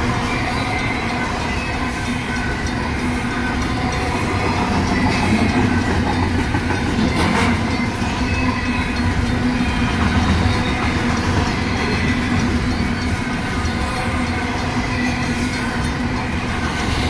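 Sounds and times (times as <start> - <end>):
crossing bells ringing: 0.0 - 17.0
train rolling past rumbling: 0.0 - 17.0.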